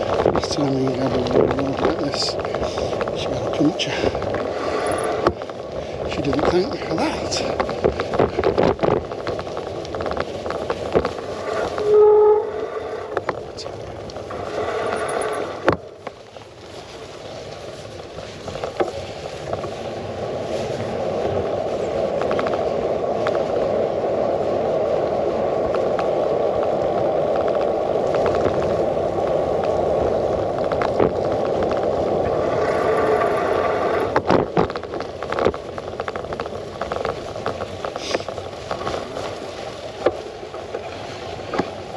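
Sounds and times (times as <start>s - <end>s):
bike and mount rattling: 0.0s - 41.9s
tyre noise: 0.0s - 41.9s
wind: 0.0s - 41.9s
short pitched squeal: 11.6s - 13.1s.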